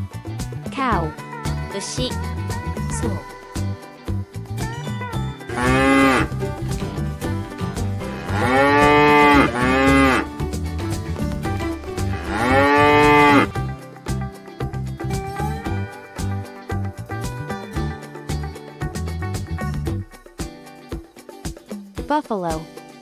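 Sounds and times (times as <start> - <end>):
background music: 0.0 - 23.0
cow mooing: 8.0 - 10.3, 12.1 - 13.6.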